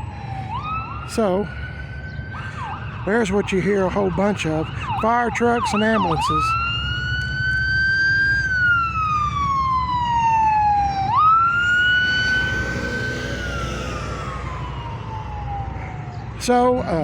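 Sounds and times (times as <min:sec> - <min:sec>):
emergency siren wailing: 0:00.0 - 0:17.0
low steady rumble: 0:11.3 - 0:16.5.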